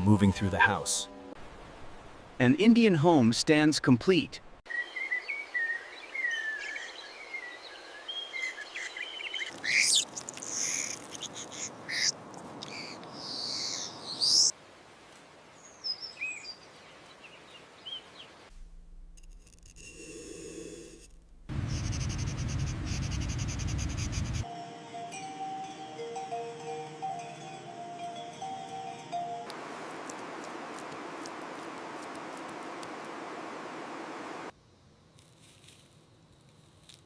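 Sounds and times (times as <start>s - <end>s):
birds chirping and calling: 8.1s - 14.5s
low fluttering noise: 21.5s - 24.4s.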